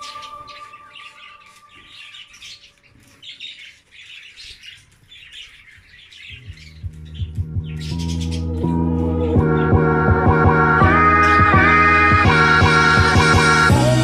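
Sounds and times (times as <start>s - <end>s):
budgerigars chattering and chirping: 0.0s - 9.7s.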